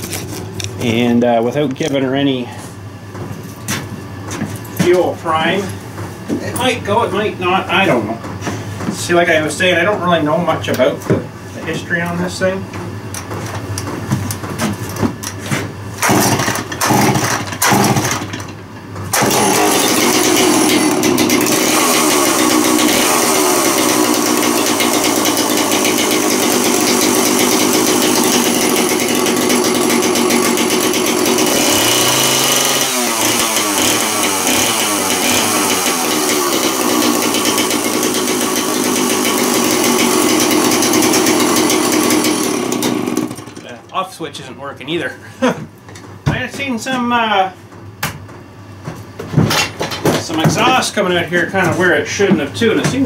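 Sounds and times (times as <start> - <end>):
chainsaw running loud: 16.0 - 18.4, 19.1 - 43.6
chainsaw pull-start cord: 16.0 - 43.7.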